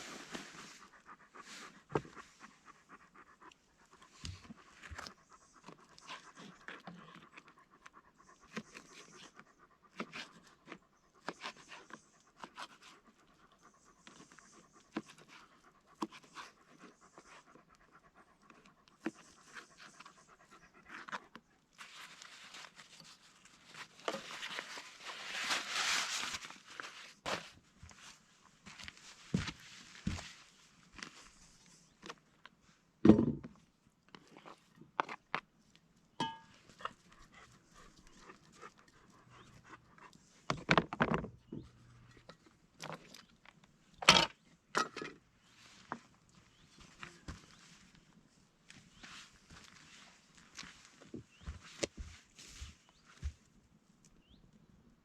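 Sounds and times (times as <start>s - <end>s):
dog panting: 0.0s - 21.6s, 36.7s - 40.5s.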